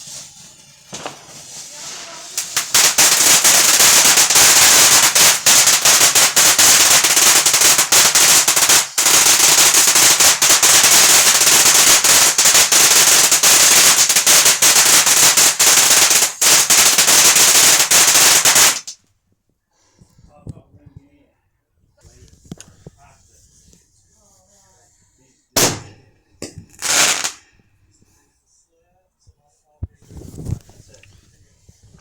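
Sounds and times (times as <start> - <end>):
fireworks crackling bangs: 0.0 - 19.0, 25.6 - 27.4.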